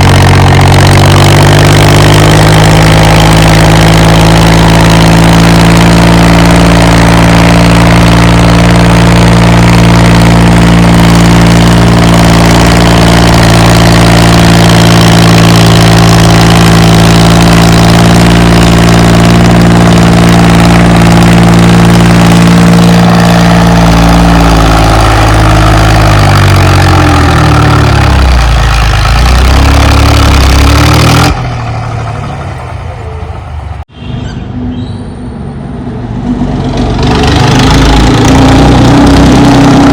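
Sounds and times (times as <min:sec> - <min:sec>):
tractor diesel engine running: 0:00.0 - 0:33.9, 0:36.2 - 0:39.9.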